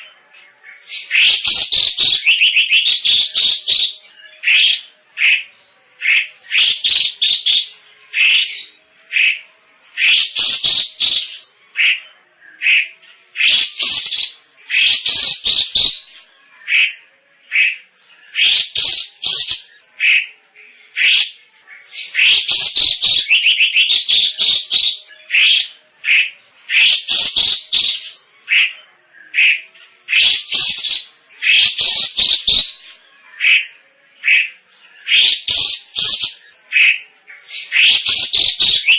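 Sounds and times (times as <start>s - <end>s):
songbird harsh chattering: 22.0s - 28.7s, 29.4s - 32.8s.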